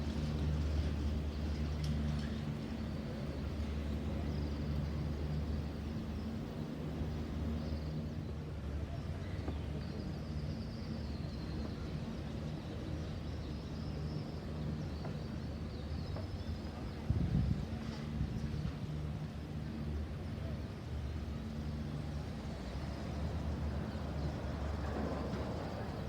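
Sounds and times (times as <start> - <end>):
low machinery drone: 0.0 - 8.8.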